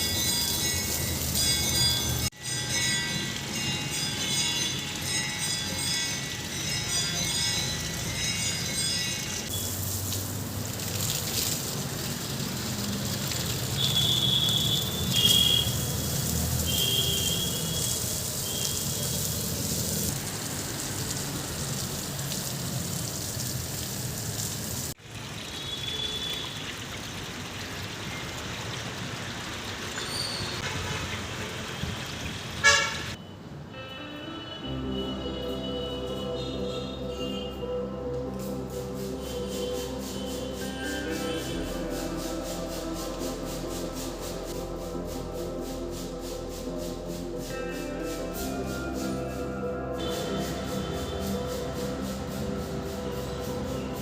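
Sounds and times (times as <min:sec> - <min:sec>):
traffic noise: 0:00.0 - 0:54.0
short horn toots: 0:13.8 - 0:15.9, 0:16.6 - 0:18.8.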